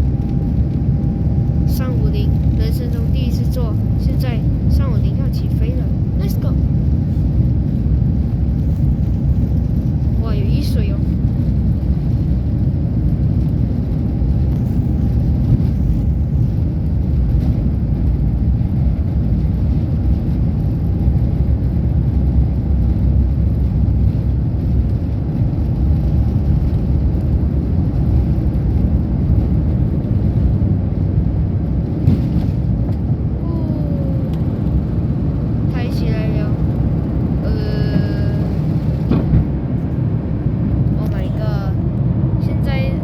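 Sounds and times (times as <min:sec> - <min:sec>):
jet engine and runway rumble: 0:00.0 - 0:43.0.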